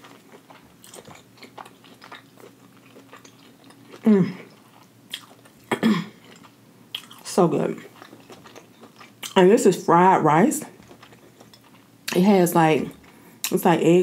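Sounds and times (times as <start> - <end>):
close-miked chewing: 0.0 - 9.5, 10.7 - 12.2
person humming mm: 4.0 - 4.5.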